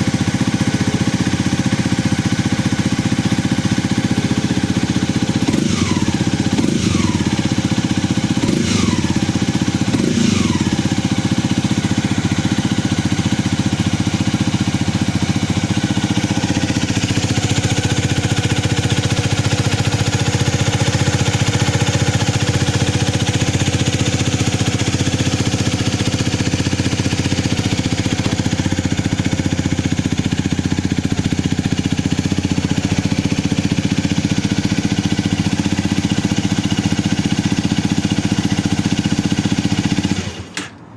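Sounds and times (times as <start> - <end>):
motorcycle engine idling: 0.0 - 40.8
motorcycle throttle revving: 0.0 - 40.8.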